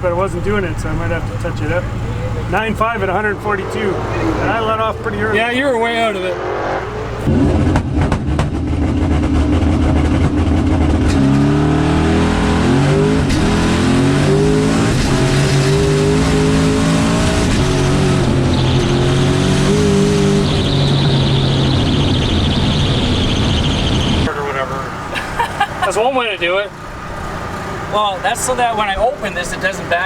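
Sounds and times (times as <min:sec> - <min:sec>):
drag car accelerating through gears: 0:01.0 - 0:25.1
high whine: 0:02.4 - 0:07.8.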